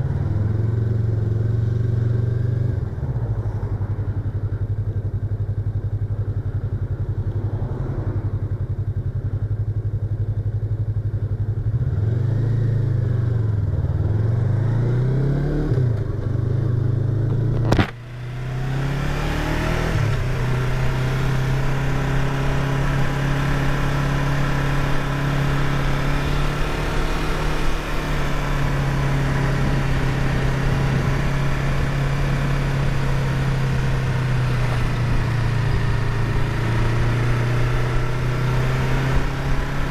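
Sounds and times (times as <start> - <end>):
motorcycle engine running: 0.0 - 39.9
sharp click: 17.5 - 18.0.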